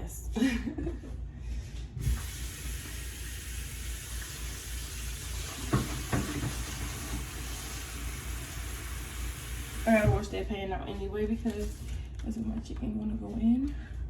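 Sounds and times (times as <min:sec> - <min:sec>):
tap running into sink: 0:02.0 - 0:10.3.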